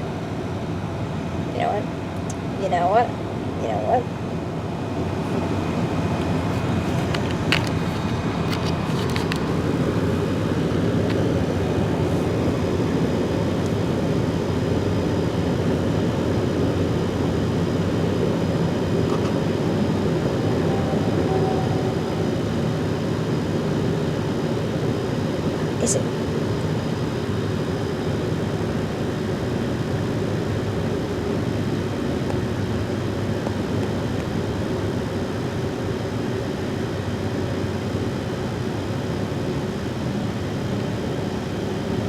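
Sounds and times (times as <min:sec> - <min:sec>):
car cabin road and engine noise: 0:00.0 - 0:42.0.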